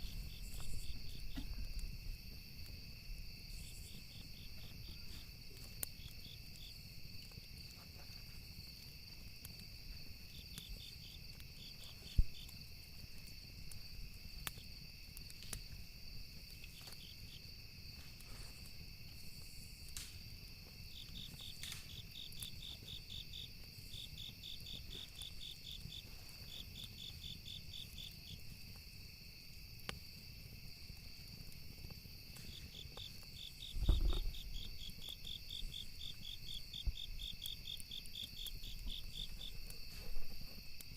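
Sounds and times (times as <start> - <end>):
campfire wood crackling: 0.0 - 40.9
crickets chirping: 0.0 - 40.9
steady insect drone: 0.0 - 40.9
low thud: 33.8 - 34.4.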